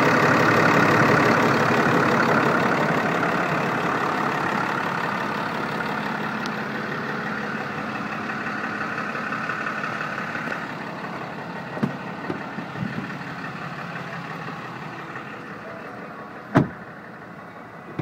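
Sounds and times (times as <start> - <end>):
diesel truck engine idling: 0.0 - 18.0.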